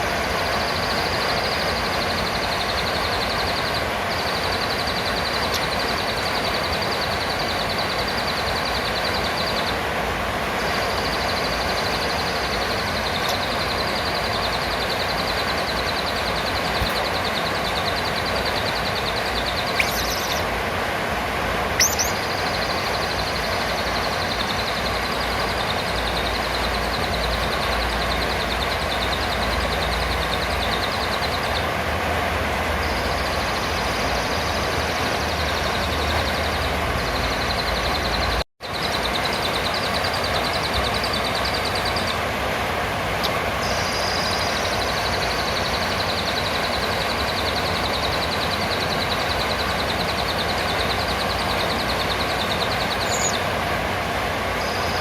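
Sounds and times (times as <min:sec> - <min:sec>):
dense hissing background: 0:00.0 - 0:55.0
parrot high-pitched trill: 0:10.7 - 0:20.5, 0:21.8 - 0:31.6.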